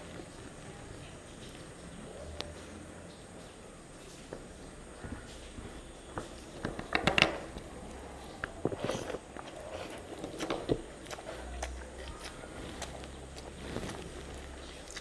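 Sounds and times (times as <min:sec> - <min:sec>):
wet chewing and lip smacks: 0:08.3 - 0:15.0.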